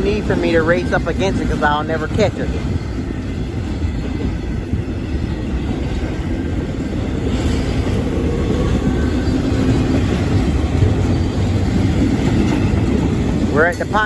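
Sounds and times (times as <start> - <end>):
freight train wheels rumbling on rail: 0.0 - 14.0.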